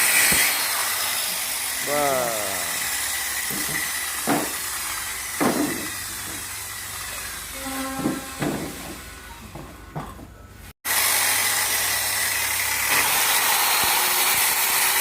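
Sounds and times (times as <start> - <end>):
power tool hissing: 0.0 - 7.6, 10.9 - 15.0
wood knocking: 3.5 - 4.6, 5.4 - 6.4, 8.0 - 10.3.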